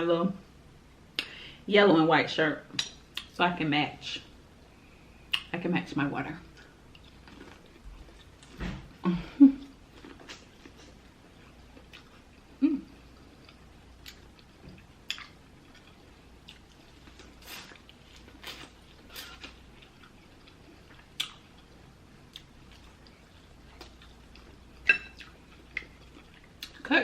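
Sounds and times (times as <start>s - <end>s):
person chewing: 6.6s - 8.6s, 9.6s - 26.8s.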